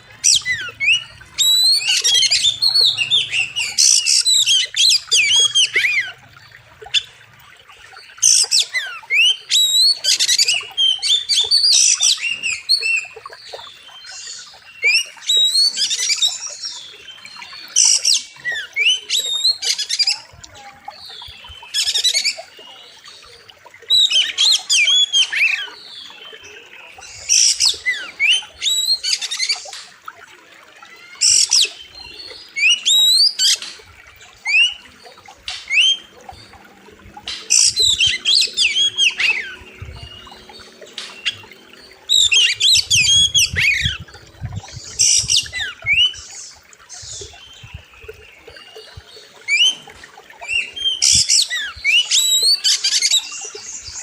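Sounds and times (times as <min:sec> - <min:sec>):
magpie-robin whistling song: 0:00.2 - 0:06.2.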